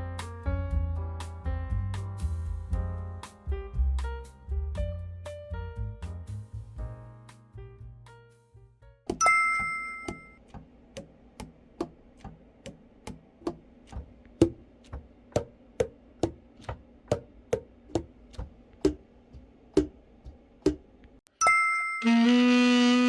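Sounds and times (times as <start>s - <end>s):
bell-like chime: 9.2s - 10.4s, 21.3s - 22.3s.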